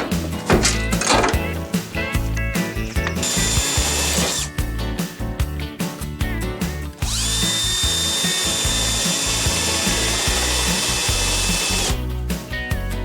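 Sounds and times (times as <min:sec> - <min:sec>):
background music: 0:00.0 - 0:13.0
power tool whining: 0:03.0 - 0:04.5, 0:07.0 - 0:12.0.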